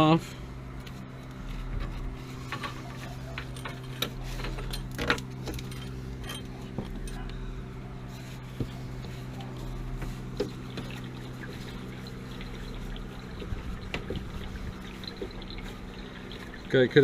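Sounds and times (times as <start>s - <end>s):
steady hum: 0.0s - 17.0s
water trickling: 9.0s - 17.0s.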